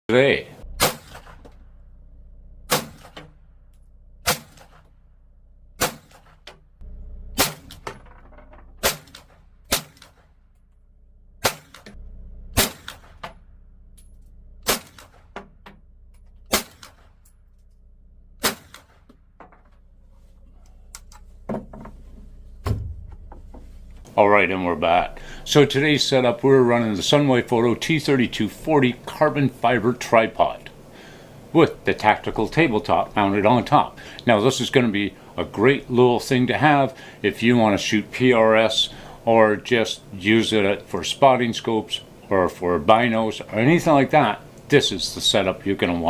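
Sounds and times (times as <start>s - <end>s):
gunshots cracking: 0.7s - 1.6s, 2.7s - 3.4s, 4.2s - 4.9s, 5.8s - 6.4s, 7.4s - 7.9s, 8.8s - 10.4s, 11.4s - 12.0s, 12.6s - 13.4s, 14.6s - 15.4s, 16.5s - 17.2s, 18.4s - 19.0s.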